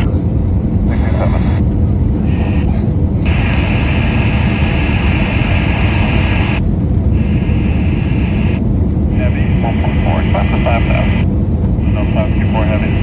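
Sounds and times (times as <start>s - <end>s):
airliner cabin rumble: 0.0s - 13.0s
radio channel hiss: 2.2s - 2.7s, 3.3s - 6.6s, 7.2s - 13.0s.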